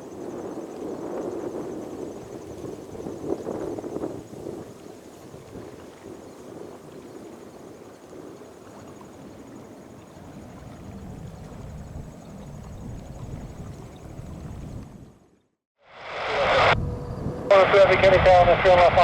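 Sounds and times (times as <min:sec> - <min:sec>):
water: 0:00.0 - 0:16.3, 0:17.4 - 0:19.0
wind: 0:00.0 - 0:19.0
low rumble: 0:16.0 - 0:19.0.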